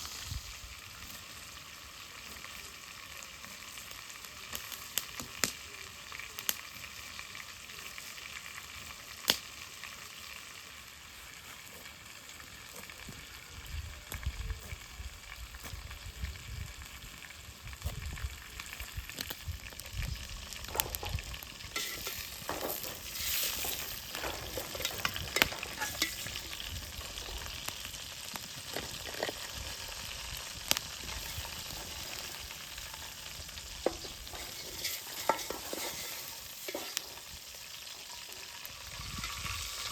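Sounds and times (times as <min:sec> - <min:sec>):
food sizzling in a pan: 0:00.0 - 0:39.9
utensil scraping a pan: 0:20.7 - 0:27.6, 0:31.0 - 0:33.2, 0:33.8 - 0:37.3.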